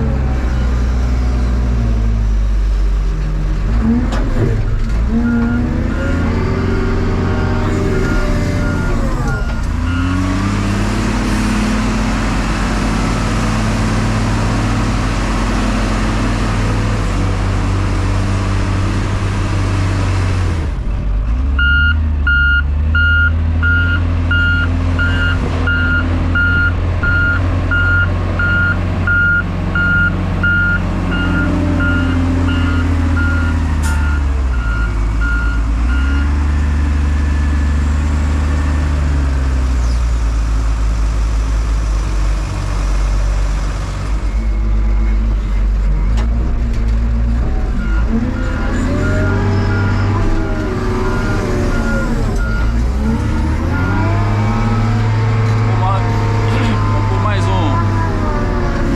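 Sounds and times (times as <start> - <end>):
diesel engine working: 0.0 - 58.9
reversing alarm beeping: 5.3 - 10.8, 21.6 - 36.2, 47.8 - 55.2.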